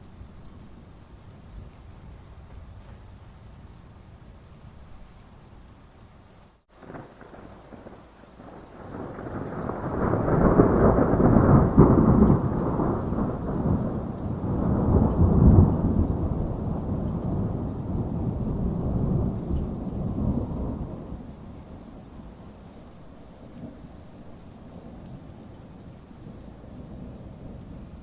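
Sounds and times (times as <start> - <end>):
steady rain: 0.0 - 28.0
rolling thunder: 6.8 - 28.0.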